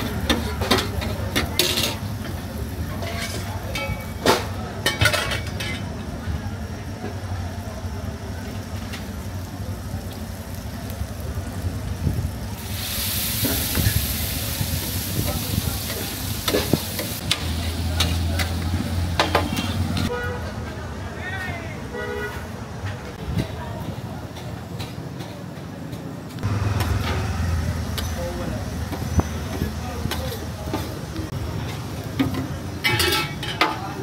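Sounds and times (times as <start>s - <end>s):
metal spatula scraping griddle: 0.0s - 2.1s, 2.8s - 5.8s
liver frying on griddle: 0.0s - 20.1s, 26.4s - 34.0s.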